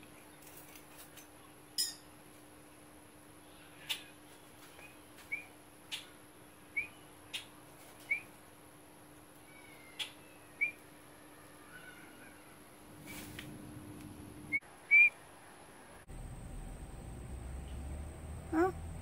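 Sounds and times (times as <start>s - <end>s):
faint steady hum: 0.0s - 19.0s
bird whistled chirps: 9.7s - 10.8s, 14.9s - 15.1s.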